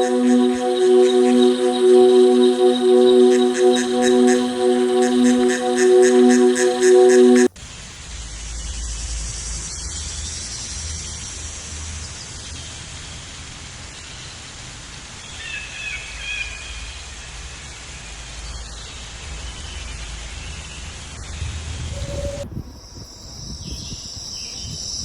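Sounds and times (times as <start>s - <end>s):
high chirps: 0.0s - 7.5s, 21.9s - 24.0s.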